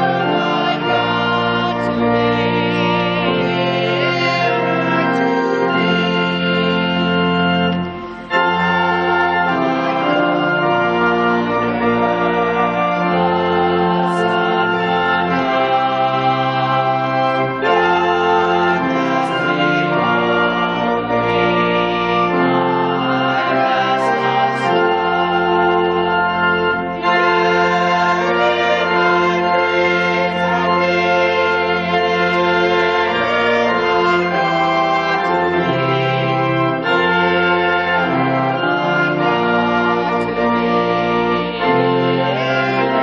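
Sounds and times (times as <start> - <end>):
church organ chords: 0.0 - 43.0.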